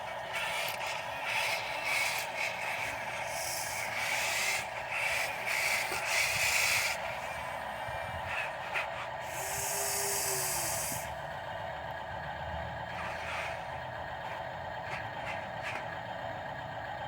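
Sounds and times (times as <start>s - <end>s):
dump truck engine running: 0.0s - 17.0s
air hissing: 3.2s - 7.0s, 9.3s - 11.1s.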